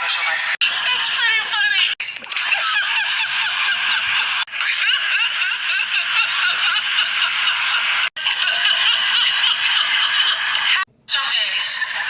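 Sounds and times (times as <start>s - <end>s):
audience laughing and cheering: 0.0s - 10.9s.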